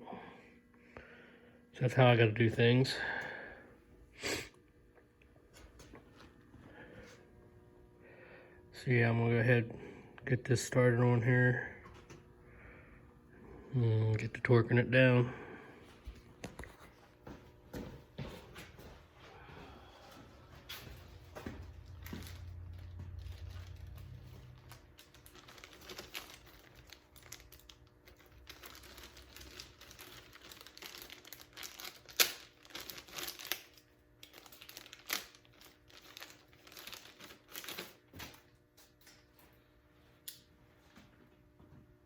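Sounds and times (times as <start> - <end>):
rustling of parts: 18.6 - 39.6.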